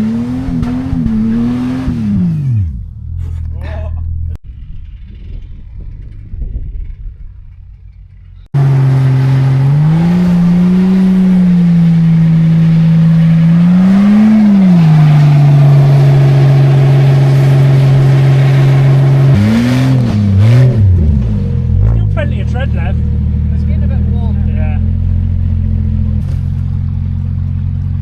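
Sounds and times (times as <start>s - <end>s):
engine revving at high revs: 0.0s - 2.8s, 8.6s - 22.2s
faint low rumble: 2.5s - 8.5s.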